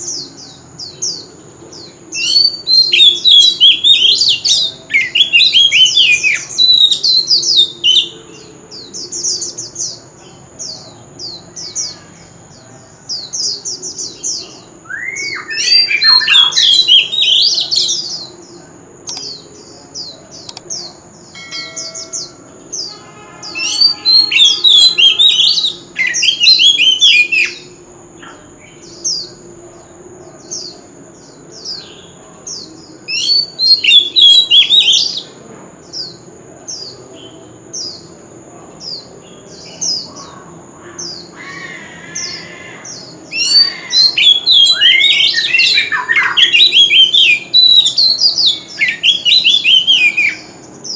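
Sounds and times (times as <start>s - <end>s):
bird singing whistled phrases: 2.2s - 8.2s, 14.8s - 18.1s, 21.4s - 27.7s, 33.1s - 35.2s, 43.3s - 50.5s.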